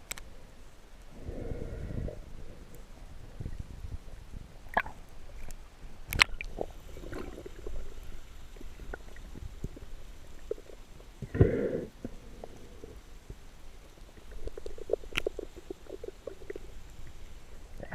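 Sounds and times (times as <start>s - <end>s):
underwater rumble: 0.2s - 17.9s
bubbling: 4.7s - 5.4s, 6.1s - 17.9s.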